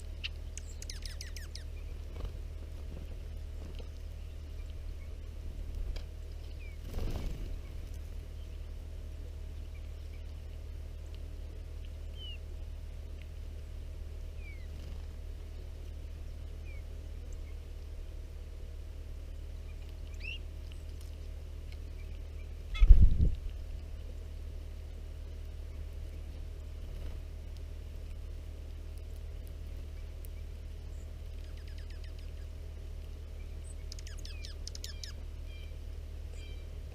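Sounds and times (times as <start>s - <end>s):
birds chirping: 0.0s - 13.4s, 14.2s - 18.0s, 19.3s - 23.0s, 29.0s - 36.8s
low hum: 0.0s - 36.9s.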